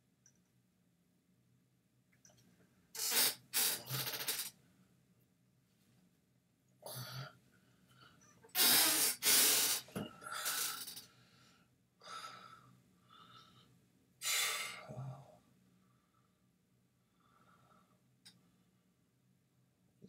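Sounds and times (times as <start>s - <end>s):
man breathing: 9.0s - 16.4s.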